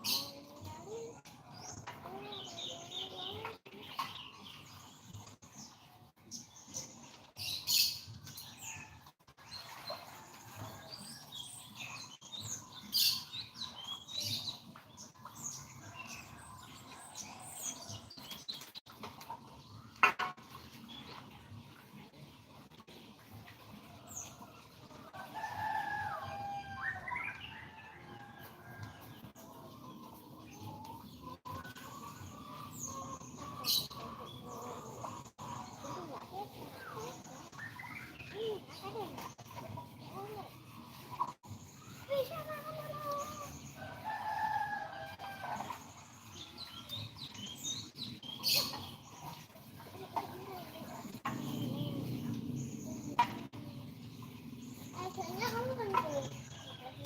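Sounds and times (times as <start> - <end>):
birds calling: 25.1 - 57.0.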